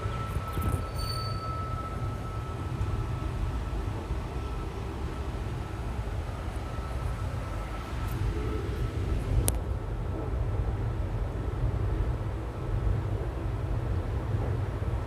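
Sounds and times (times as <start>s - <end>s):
faint thin whine: 0.0s - 10.3s
train rumbling on track: 0.0s - 15.0s.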